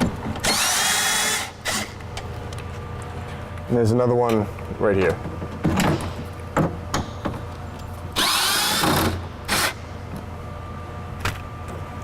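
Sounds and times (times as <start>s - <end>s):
cordless power driver whirring: 8.2s - 9.8s.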